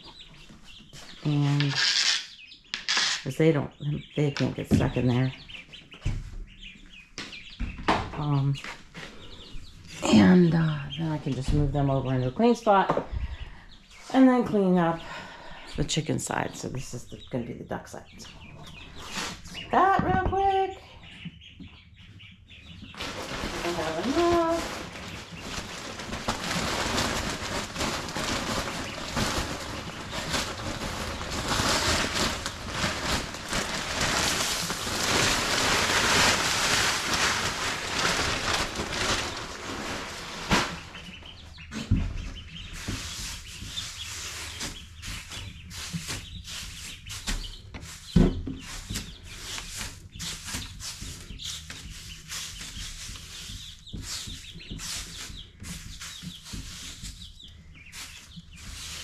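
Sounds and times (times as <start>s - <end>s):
birds rustling and flapping: 0.0s - 3.4s, 22.1s - 59.0s
scratching in bedding: 22.9s - 41.2s.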